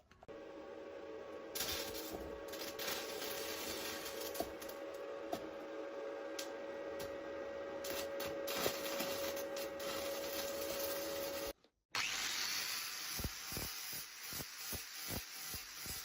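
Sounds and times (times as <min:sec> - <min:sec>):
motor hum: 0:00.2 - 0:11.5.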